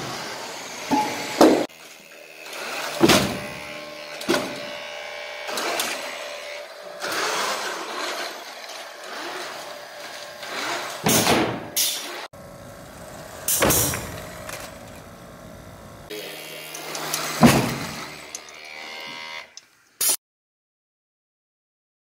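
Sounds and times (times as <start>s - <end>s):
small electric motors running: 0.0s - 20.0s.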